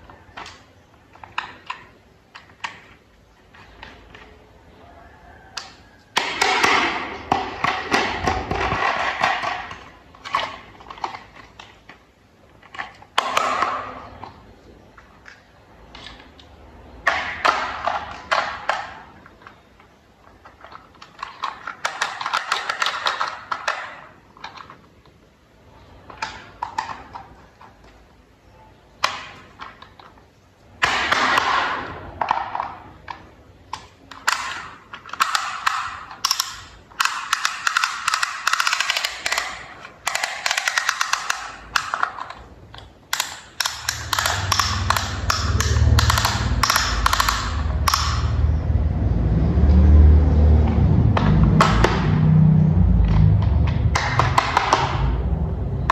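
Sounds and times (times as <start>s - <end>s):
plastic toy parts clicking: 0.0s - 4.3s, 5.6s - 14.4s, 15.0s - 28.2s, 28.9s - 48.8s, 53.1s - 55.9s
low rumble: 44.0s - 55.9s.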